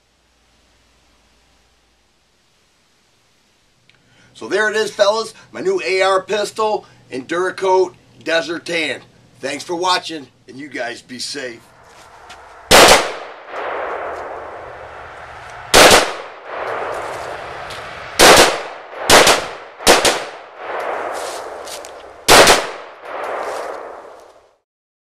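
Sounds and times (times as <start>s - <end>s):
gunshots with rolling echo: 11.7s - 24.5s.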